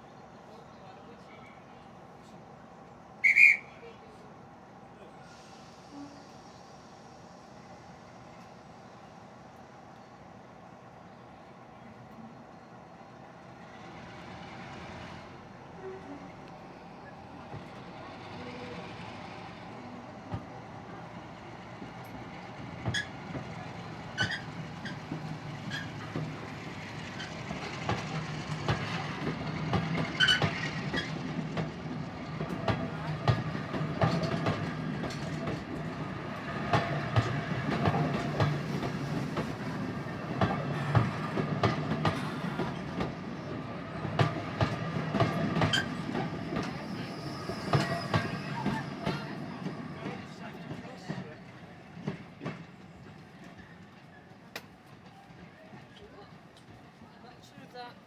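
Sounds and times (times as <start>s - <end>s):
train wheels clicking over rail joints: 21.7s - 56.8s.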